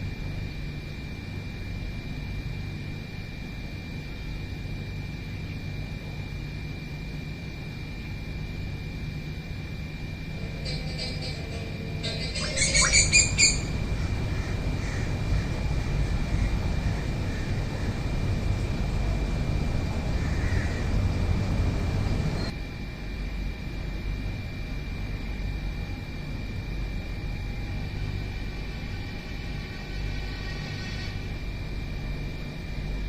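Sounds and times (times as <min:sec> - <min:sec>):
steady low rumble: 0:09.4 - 0:24.4
high-pitched tone: 0:10.3 - 0:13.8
bird squawking: 0:10.4 - 0:15.1.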